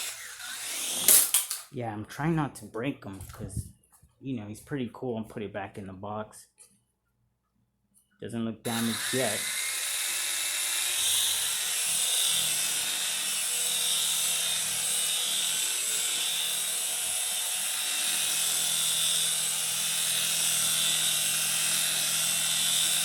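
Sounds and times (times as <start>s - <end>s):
toy helicopter rotors whirring: 0.0s - 1.6s, 8.7s - 23.0s.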